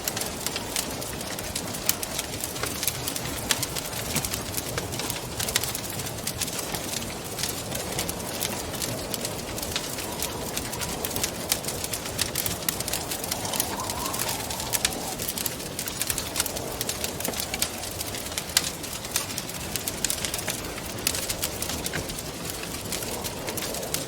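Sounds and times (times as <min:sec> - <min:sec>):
rushing wind: 0:00.0 - 0:24.0
wood fire crackling and popping: 0:00.0 - 0:24.0
faint wavering whistle: 0:12.6 - 0:16.3.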